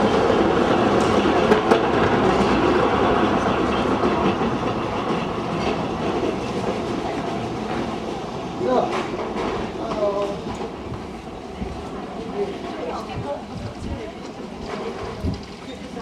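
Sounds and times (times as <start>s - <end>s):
train wheels clattering on rails: 0.0s - 16.0s.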